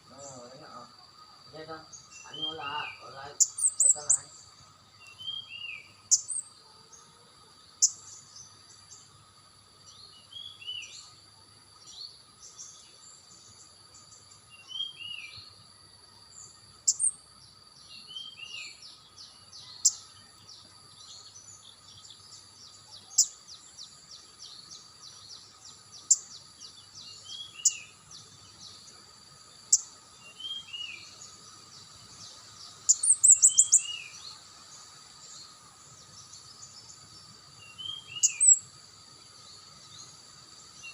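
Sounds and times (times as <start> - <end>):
songbird chip notes: 0.0 - 6.5.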